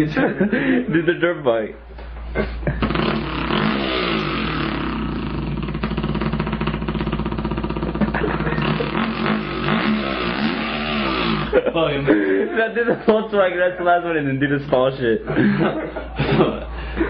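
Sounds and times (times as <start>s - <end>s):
man imitating dirt bike engine: 2.5s - 12.1s.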